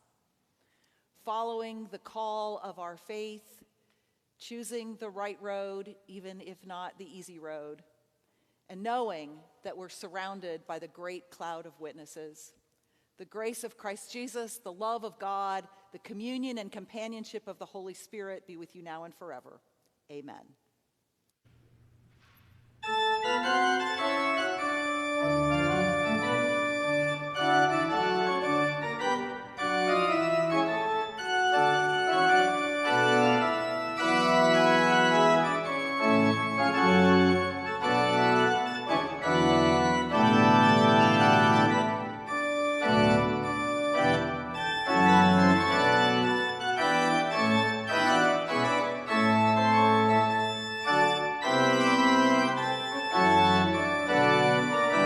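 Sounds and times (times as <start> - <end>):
church organ playing chords: 22.8 - 55.0.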